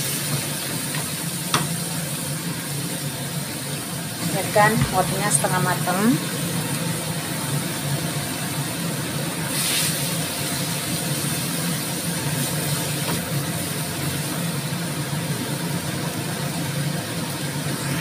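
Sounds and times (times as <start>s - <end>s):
low mechanical hum: 0.0s - 18.0s
vegetables sizzling in wok: 0.0s - 18.0s.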